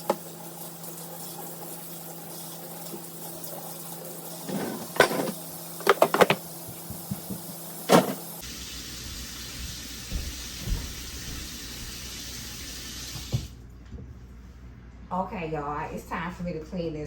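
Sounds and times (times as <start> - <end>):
kitchenware clinking: 4.4 - 6.4, 7.9 - 8.4.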